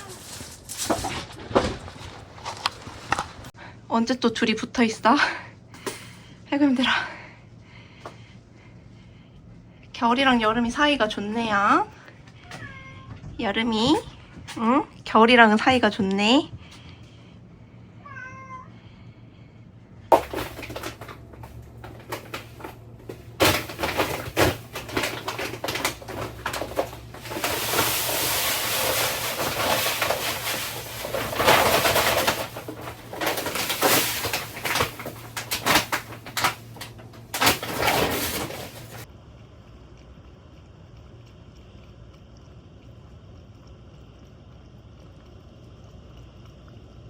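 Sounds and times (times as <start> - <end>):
cat meowing: 12.4 - 13.3, 18.0 - 18.8.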